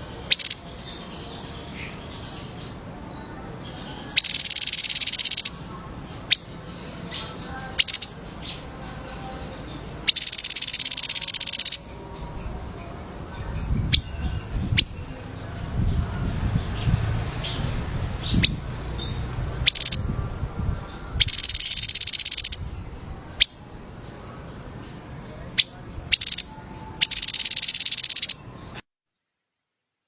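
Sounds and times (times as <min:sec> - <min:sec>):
songbird chirping: 0:00.0 - 0:28.8
bird high trills: 0:04.0 - 0:05.6, 0:07.1 - 0:08.6, 0:10.0 - 0:11.9, 0:18.2 - 0:20.3, 0:20.9 - 0:23.6, 0:25.4 - 0:28.5
low rumble: 0:13.2 - 0:21.3.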